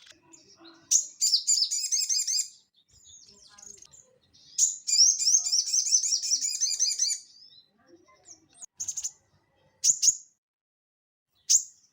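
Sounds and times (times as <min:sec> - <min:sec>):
bird singing chattering notes: 0:00.0 - 0:09.2, 0:09.8 - 0:10.4, 0:11.3 - 0:11.9.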